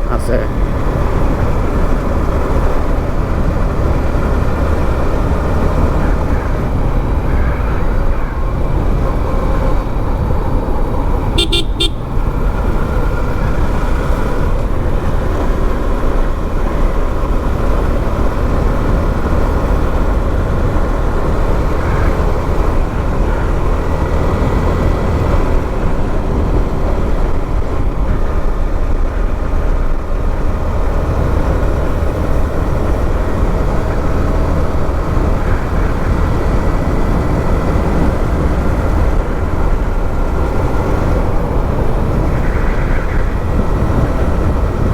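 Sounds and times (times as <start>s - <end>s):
motorbike engine: 0.0s - 44.9s
wind rush on microphone: 0.0s - 44.9s
horn toots: 11.2s - 12.4s.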